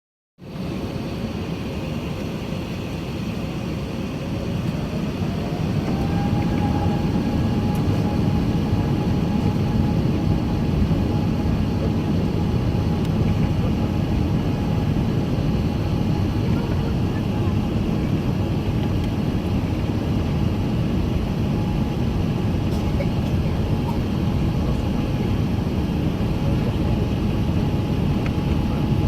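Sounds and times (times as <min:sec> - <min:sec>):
jet engines spooling up: 0:00.6 - 0:15.3
rising engine whine: 0:00.6 - 0:22.6.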